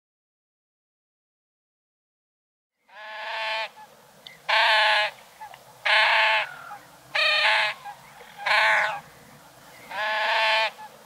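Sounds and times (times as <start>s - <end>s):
bird calling: 2.8s - 11.0s.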